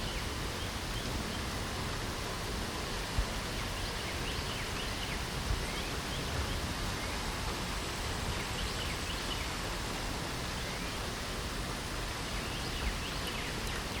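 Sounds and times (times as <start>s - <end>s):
small birds chirping: 0.0s - 1.6s, 3.0s - 9.7s, 12.2s - 14.0s
light rain falling: 0.0s - 14.0s.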